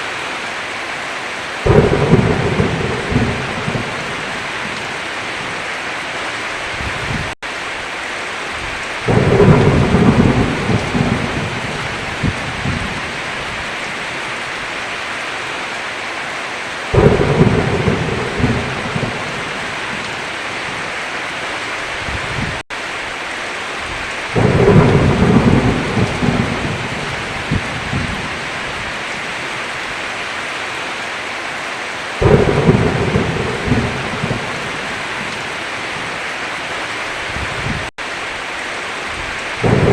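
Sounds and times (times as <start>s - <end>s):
heavy rain: 0.0s - 39.9s
thunder rolling: 1.6s - 4.9s, 9.0s - 13.6s, 16.9s - 20.3s, 24.3s - 28.5s, 32.2s - 35.5s, 39.6s - 39.9s.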